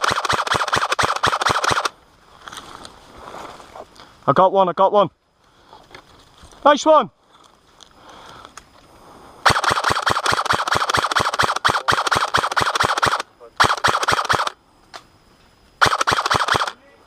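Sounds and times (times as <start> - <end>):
airsoft gun firing full auto: 0.0 - 1.9, 9.4 - 14.6, 15.8 - 16.8.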